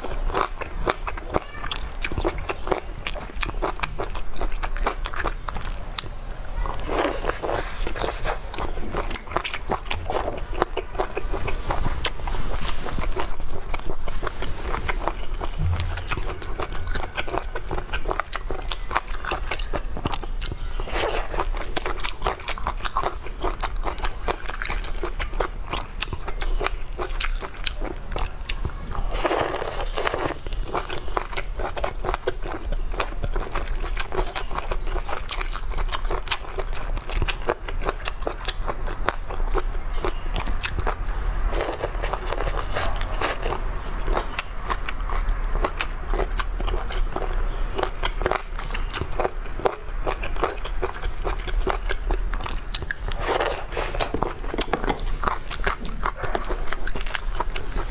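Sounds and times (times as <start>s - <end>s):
wet crackly chewing: 0.0s - 57.9s.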